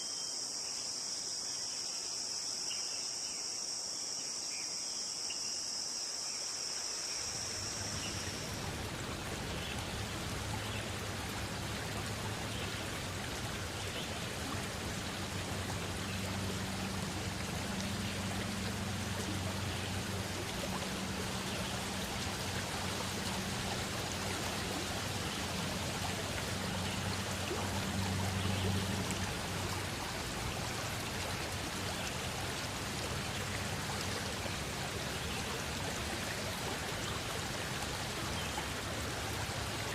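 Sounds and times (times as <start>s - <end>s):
high insect trill: 0.0s - 10.0s
stream water rushing: 6.4s - 39.9s.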